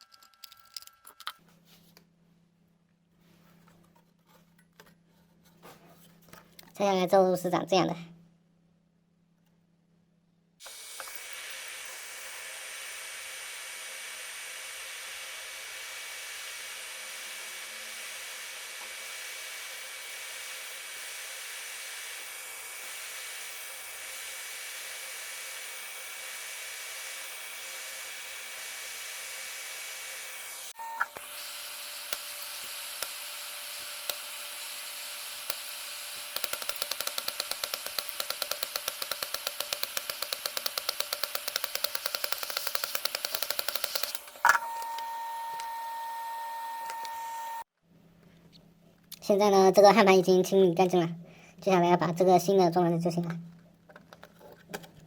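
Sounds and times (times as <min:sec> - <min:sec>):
small electric blower hissing: 0:10.6 - 0:47.7
thin whine: 0:43.5 - 0:47.7.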